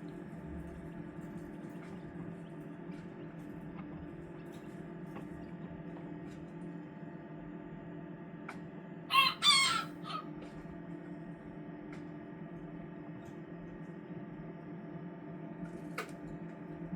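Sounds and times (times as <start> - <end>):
rooster crowing: 9.1 - 10.3.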